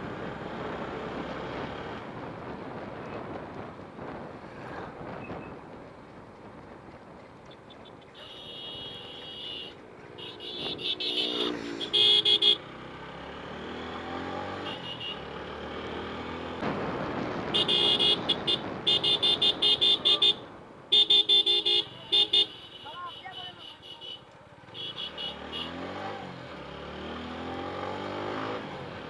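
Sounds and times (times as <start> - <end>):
motorcycle road noise: 0.0 - 29.0
wind noise: 2.0 - 7.8
vehicle horn honking: 8.2 - 12.6, 14.6 - 15.3, 17.6 - 25.8.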